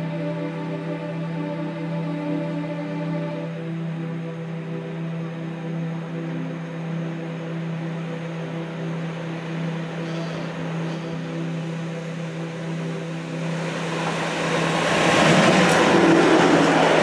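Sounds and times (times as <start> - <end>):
freight train passing: 0.0 - 17.0
wheels rolling on rails: 13.4 - 17.0.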